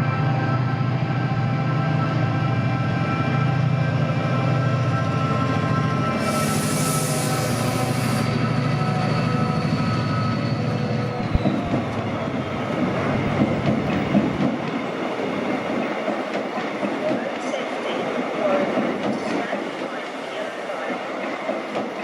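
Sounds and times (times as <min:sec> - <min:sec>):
train engine drone: 0:00.0 - 0:22.0
air hiss: 0:06.2 - 0:08.2
train wheels clattering on rails: 0:11.2 - 0:20.1, 0:20.8 - 0:22.0.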